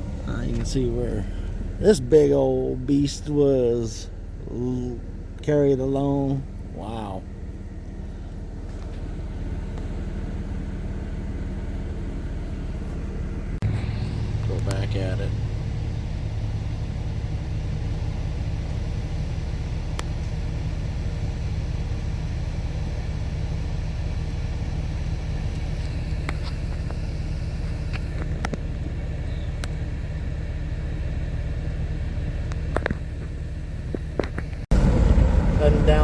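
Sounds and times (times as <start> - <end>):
car driving interior rumble: 0.0 - 36.0.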